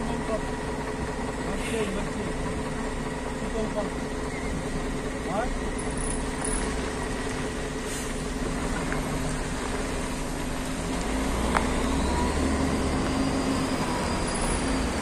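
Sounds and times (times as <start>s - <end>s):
vehicle engines idling: 0.0s - 15.0s.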